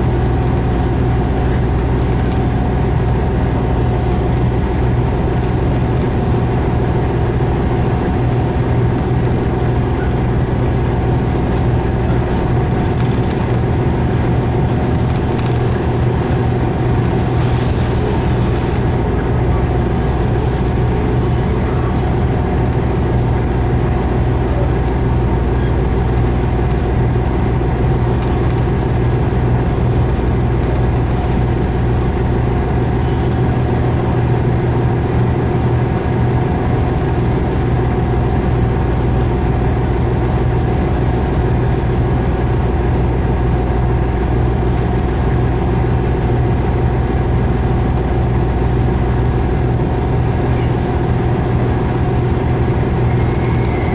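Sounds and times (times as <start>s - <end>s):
diesel railcar engine drone: 0.0s - 53.9s
rail noise: 0.0s - 53.9s
faint high squeaks: 9.6s - 22.9s, 30.7s - 33.9s, 40.3s - 42.1s, 50.3s - 53.9s.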